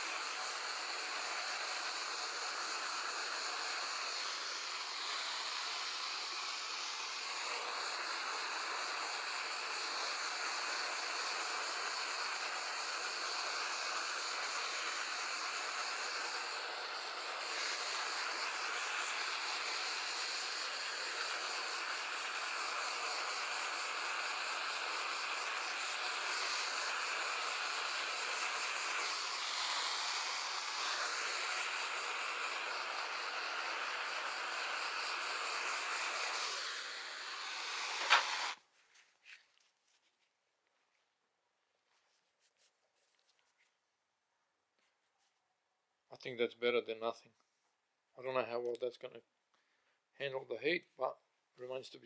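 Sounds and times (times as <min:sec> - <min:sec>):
heat gun blowing: 0:00.0 - 0:38.7.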